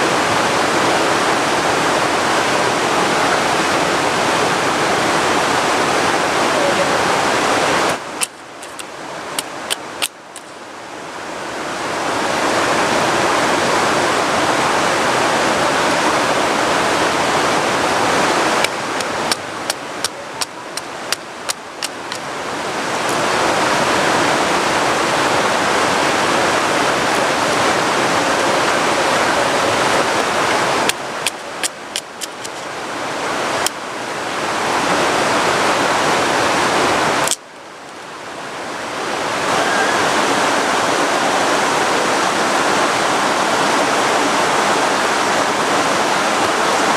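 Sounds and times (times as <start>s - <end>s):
heavy rain falling: 0.0s - 46.9s
sharp clicks: 8.2s - 10.6s, 18.6s - 22.2s, 30.9s - 32.6s.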